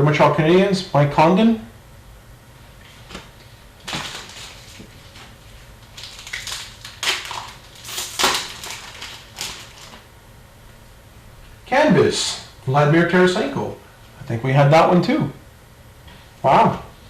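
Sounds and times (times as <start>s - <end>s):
wrappers crinkling and rustling: 2.8s - 10.1s.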